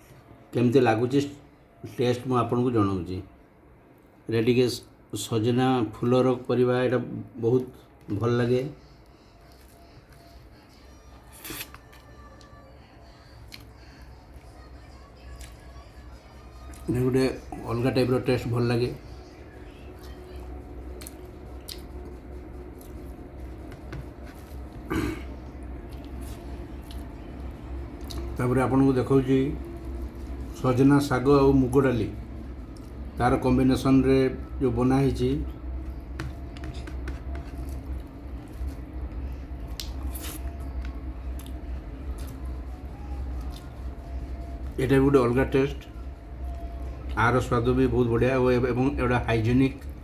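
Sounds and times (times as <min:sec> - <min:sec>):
steady low hum: 0:00.0 - 0:50.0
squishing and chewing food: 0:07.5 - 0:50.0
person eating by hand: 0:09.0 - 0:12.6, 0:19.3 - 0:28.4, 0:35.8 - 0:44.8.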